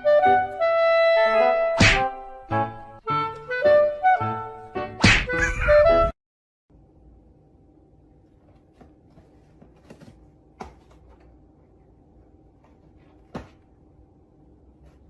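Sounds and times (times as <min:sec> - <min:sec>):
faint steady hum: 0:06.7 - 0:15.0.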